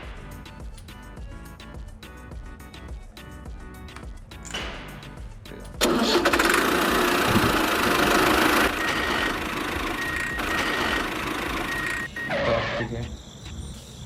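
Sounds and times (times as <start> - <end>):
background music: 0.0 - 14.0
motor running loudly: 5.8 - 12.9.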